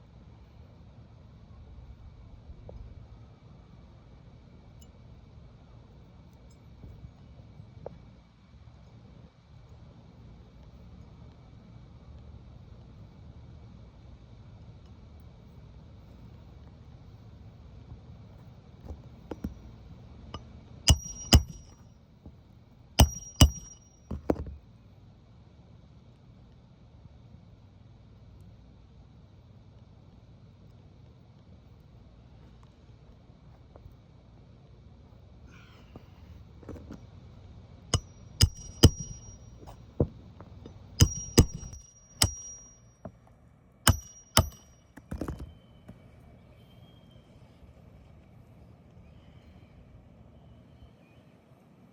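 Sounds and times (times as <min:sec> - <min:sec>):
hammer striking metal: 0:20.9 - 0:21.8, 0:23.0 - 0:24.4, 0:38.0 - 0:39.8, 0:40.6 - 0:42.9, 0:43.9 - 0:44.9.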